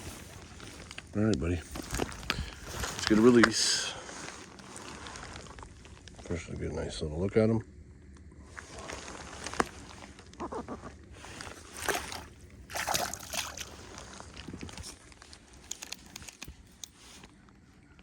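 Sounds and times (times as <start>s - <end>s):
water sloshing and splashing: 1.6s - 5.9s, 11.2s - 17.0s.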